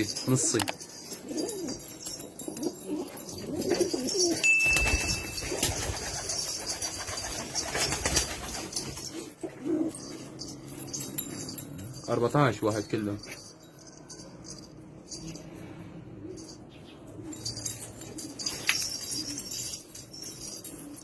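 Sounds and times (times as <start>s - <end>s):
pigeons cooing: 0.4s - 4.4s, 5.3s - 11.5s, 16.1s - 21.0s
steady high tone: 4.3s - 6.1s.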